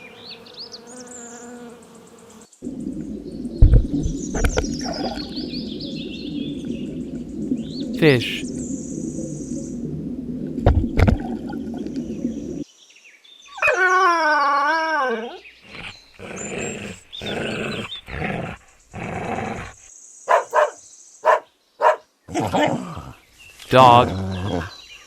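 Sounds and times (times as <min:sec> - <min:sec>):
dog howling and crying: 0:13.6 - 0:15.4, 0:20.3 - 0:22.0
dog barking: 0:20.3 - 0:22.0.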